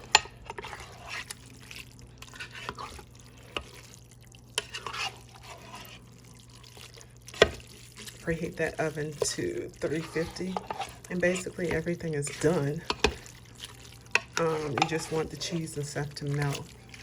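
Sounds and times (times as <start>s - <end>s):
sauce squelching while stirred: 0.0s - 17.0s
utensil clinking against pot: 14.1s - 17.0s.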